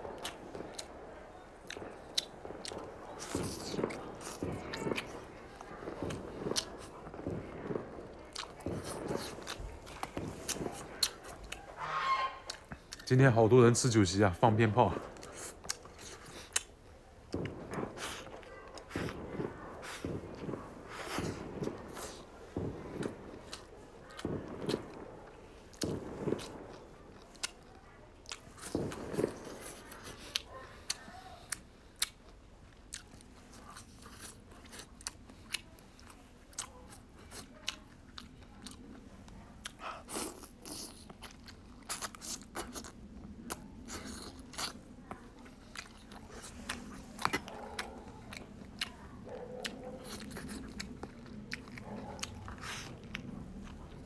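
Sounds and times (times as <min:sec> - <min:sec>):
close chewing and biting: 0:00.0 - 0:13.2, 0:13.8 - 0:54.0
mouth smacks and clicks: 0:39.6 - 0:53.9.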